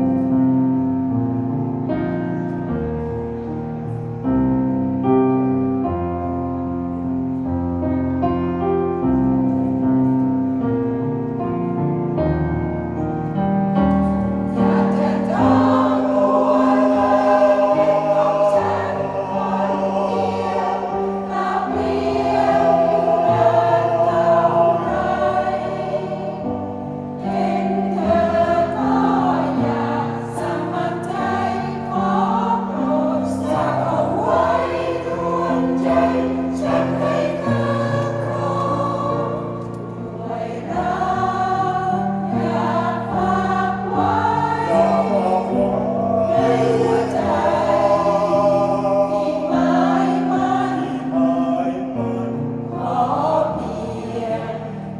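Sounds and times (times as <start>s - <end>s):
piano playing: 0.0s - 54.9s
choir singing: 12.2s - 54.9s.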